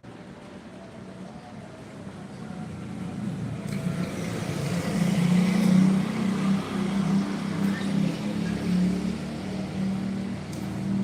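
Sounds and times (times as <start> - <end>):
vehicle engine approaching: 2.4 - 11.0.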